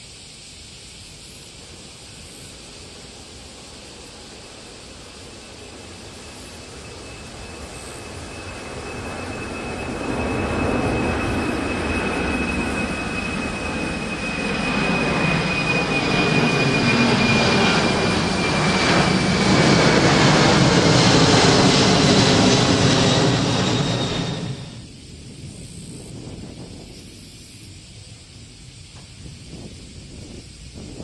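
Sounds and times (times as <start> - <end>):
jet engines roaring with fan whine: 0.0 - 31.0.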